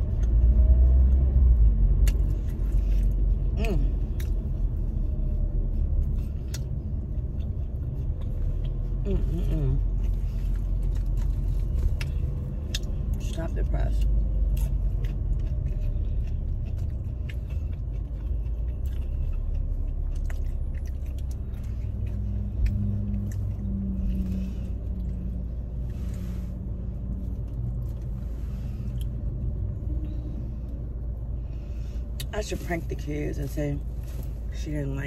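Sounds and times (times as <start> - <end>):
car engine running inside cabin: 0.0 - 35.0
low hum: 0.0 - 35.0.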